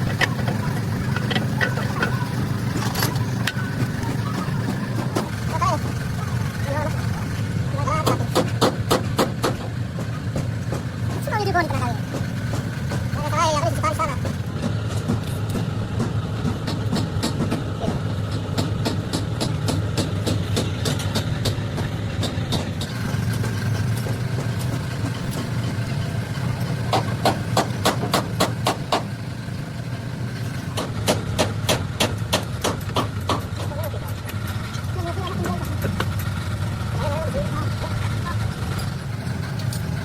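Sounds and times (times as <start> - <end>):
rapid sharp knocks: 7.3 - 25.9, 26.7 - 29.4, 30.7 - 33.7.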